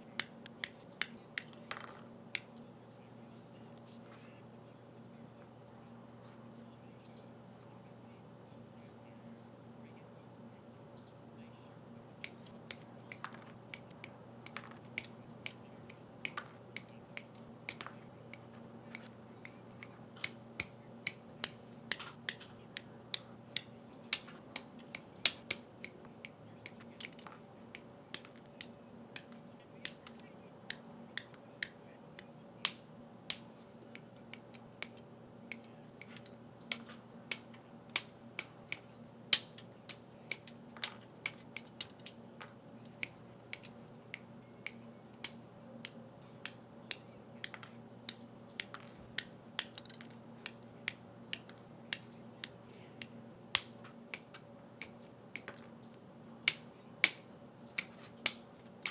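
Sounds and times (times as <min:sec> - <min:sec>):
faint steady hum: 0:00.0 - 0:58.9
plastic clicks and snaps: 0:12.2 - 0:58.9.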